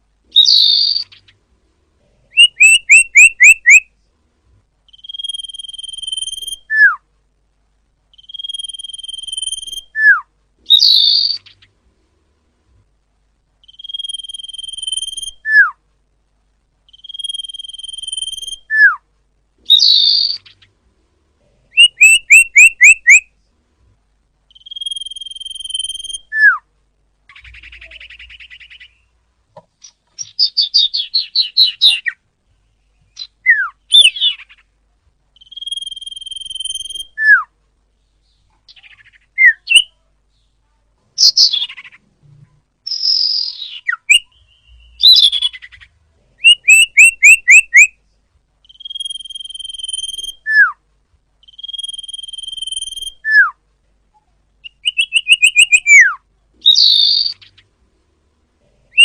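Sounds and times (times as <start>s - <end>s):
bird singing whistles and trills: 0.3s - 1.4s, 2.3s - 3.9s, 4.9s - 7.0s, 8.1s - 11.7s, 13.6s - 15.8s, 16.9s - 19.0s, 19.7s - 20.7s, 21.8s - 23.3s, 24.5s - 26.7s, 27.3s - 29.1s, 30.2s - 32.2s, 33.1s - 34.6s, 35.4s - 37.5s, 38.7s - 39.9s, 42.8s - 48.0s, 48.6s - 50.8s, 51.4s - 53.6s, 54.6s - 57.6s.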